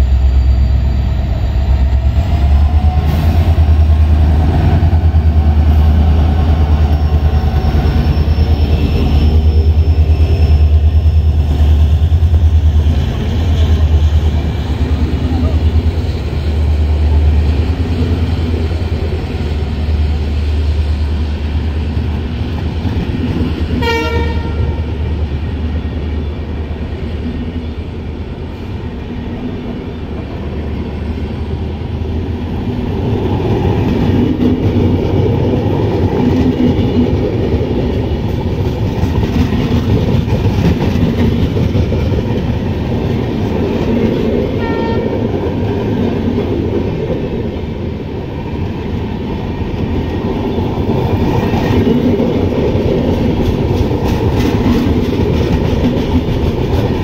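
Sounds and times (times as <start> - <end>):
train wheels rumbling and rattling: 0.0 - 57.0.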